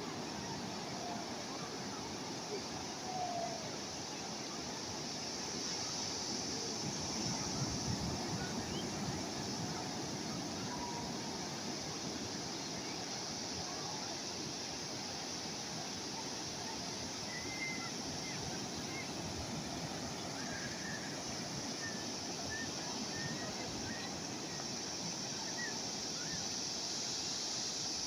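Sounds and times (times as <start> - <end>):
sea waves washing on shore: 0.0 - 28.0
faint short high calls: 17.2 - 19.1.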